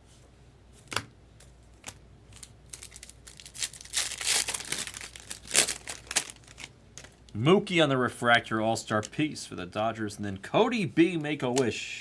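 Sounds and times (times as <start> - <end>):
wrapper being torn and crinkled: 2.3 - 7.3.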